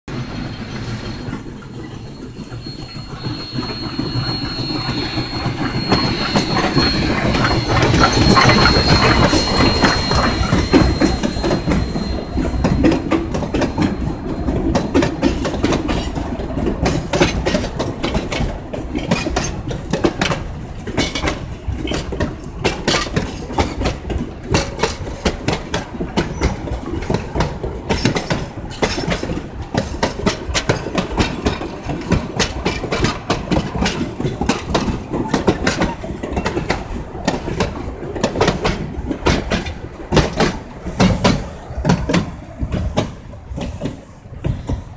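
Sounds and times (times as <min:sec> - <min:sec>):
steam locomotive passing: 0:00.1 - 0:44.9
wheels clicking over rail joints: 0:00.1 - 0:44.9
high-pitched squeal: 0:00.3 - 0:15.6.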